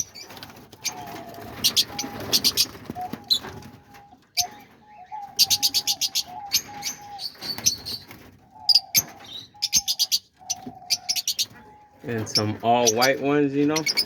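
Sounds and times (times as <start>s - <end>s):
parrots chirping: 0.0s - 14.0s
wavering bird call: 0.9s - 12.0s.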